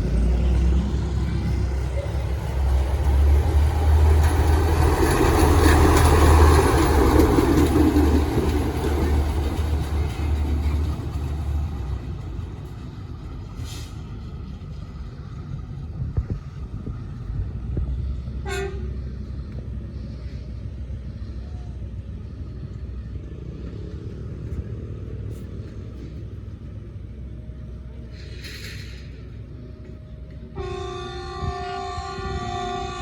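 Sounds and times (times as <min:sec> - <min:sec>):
train rumbling: 0:00.0 - 0:33.0
train horn toot: 0:18.4 - 0:19.1, 0:30.5 - 0:33.0.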